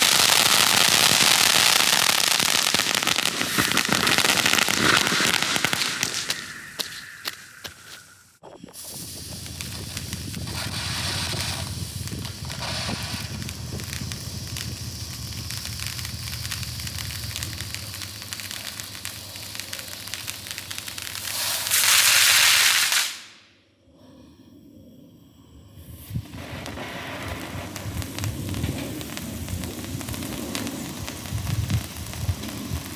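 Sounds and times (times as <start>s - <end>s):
loud hissing rush: 0.0s - 23.2s
firework fountain hissing sparks: 0.0s - 23.4s, 25.8s - 32.9s.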